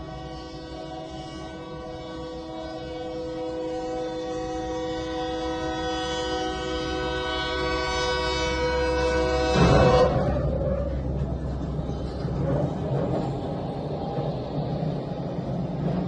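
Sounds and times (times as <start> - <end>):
locomotive air horn: 0.0 - 11.0
loud crash: 9.5 - 10.9.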